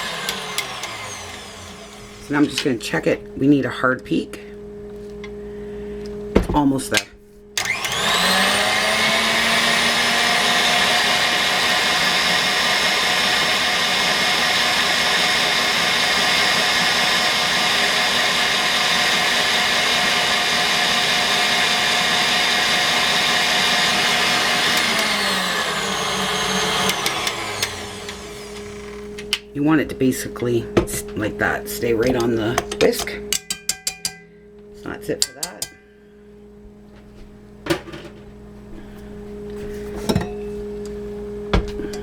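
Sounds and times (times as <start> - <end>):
electric mixer motor whine: 0.0 - 2.6, 7.6 - 29.5.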